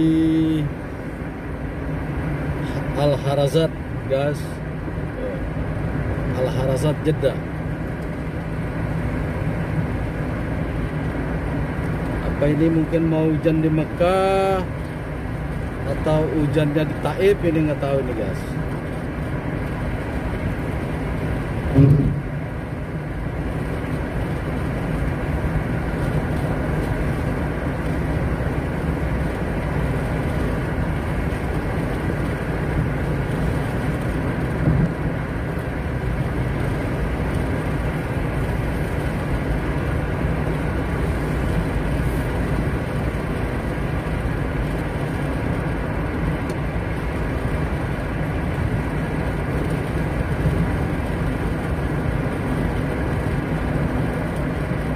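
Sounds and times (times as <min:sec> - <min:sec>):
car engine and road noise: 0:00.0 - 0:54.9
short knock: 0:21.7 - 0:22.2.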